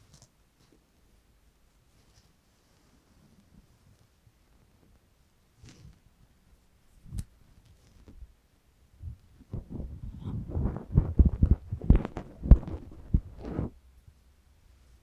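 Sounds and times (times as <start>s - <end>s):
handling noise on microphone: 1.9s - 6.2s, 6.9s - 8.4s, 9.0s - 13.8s.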